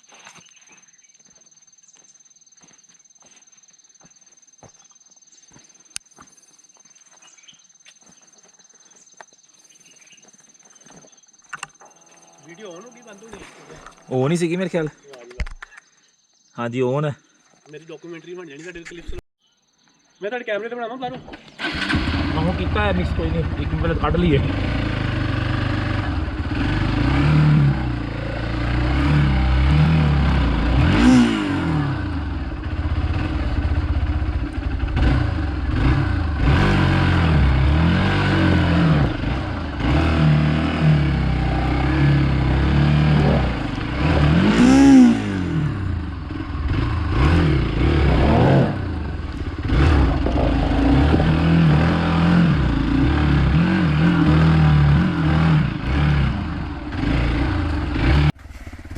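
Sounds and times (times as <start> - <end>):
motorcycle engine revving: 21.2 - 58.9.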